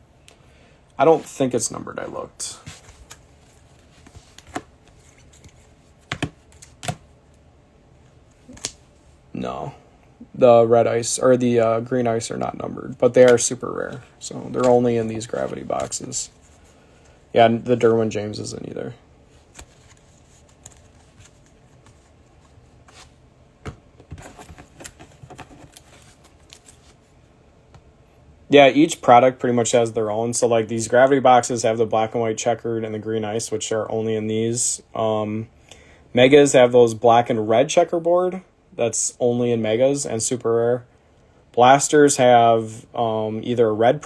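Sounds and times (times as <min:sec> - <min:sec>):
faint low hum: 0:00.0 - 0:44.0
trading cards clicking and tapping: 0:06.1 - 0:07.0.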